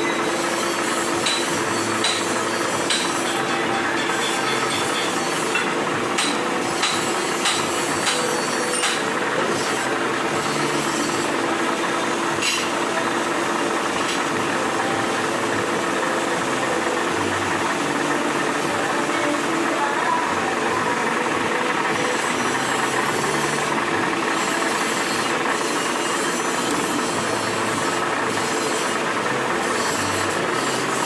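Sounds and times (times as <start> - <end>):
workshop machinery humming: 0.0 - 31.0.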